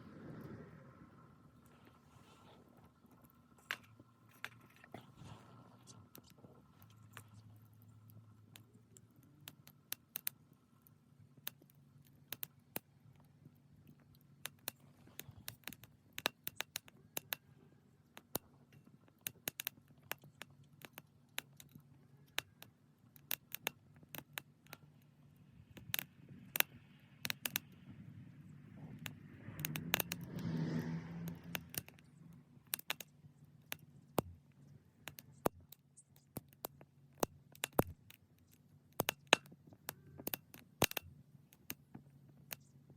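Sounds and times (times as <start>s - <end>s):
rushing swell: 0.0s - 2.7s
low steady hum: 0.0s - 42.9s
wood fire crackling: 18.1s - 42.9s.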